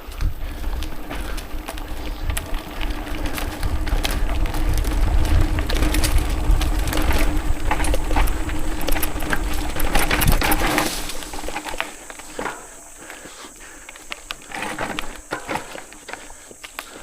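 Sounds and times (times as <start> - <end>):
wind rumble on camera: 0.0 - 11.8
bike chain and frame clatter: 0.0 - 17.0
tyres crunching over dirt: 0.0 - 17.0.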